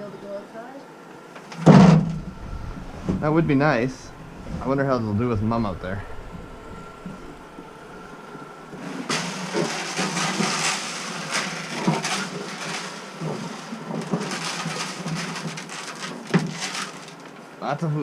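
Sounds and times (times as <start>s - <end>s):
dry feed pouring rattling: 8.5s - 17.3s.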